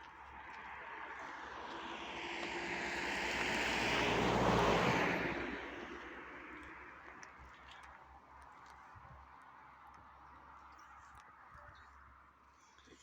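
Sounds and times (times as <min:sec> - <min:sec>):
vehicle passing by: 0:00.7 - 0:06.8.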